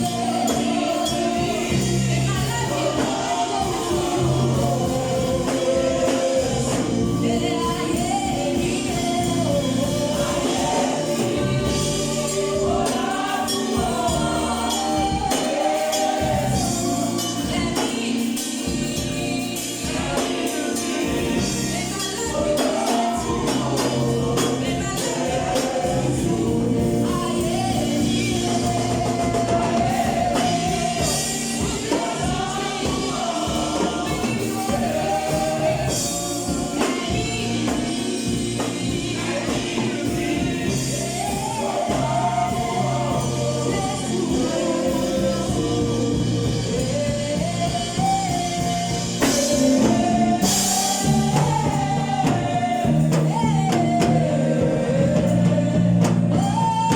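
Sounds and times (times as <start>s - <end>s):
bass line: 0.0s - 17.8s, 21.1s - 56.9s
gospel choir singing: 0.0s - 56.9s
steady percussive beat: 0.0s - 56.9s.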